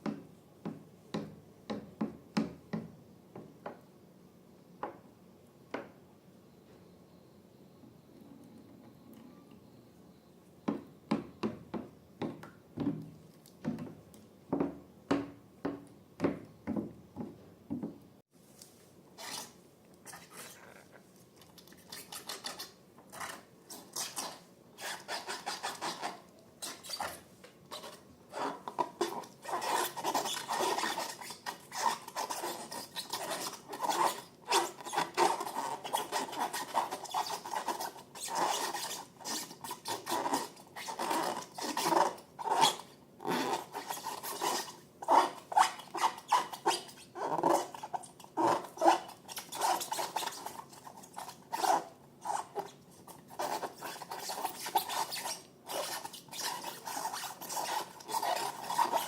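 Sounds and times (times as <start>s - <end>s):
sticky slime strokes: 18.4s - 59.0s.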